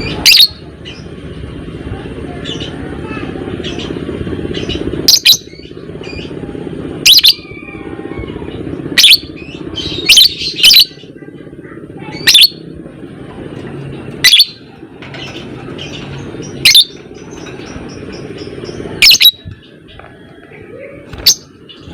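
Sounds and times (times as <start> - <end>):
steady low hum: 0.0 - 21.9
lovebird piercing calls: 0.2 - 1.0, 4.6 - 6.3, 7.0 - 7.5, 9.0 - 11.0, 12.2 - 12.6, 14.2 - 14.6, 15.2 - 19.5
soft bird twittering: 7.0 - 11.3, 12.0 - 12.7, 13.8 - 21.9.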